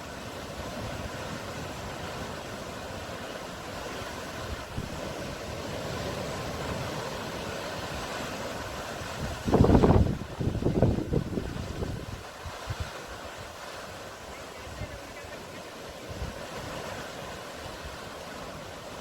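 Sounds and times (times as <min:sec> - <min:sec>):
sea surf washing: 0:00.0 - 0:19.0
wind buffeting microphone: 0:04.2 - 0:15.2.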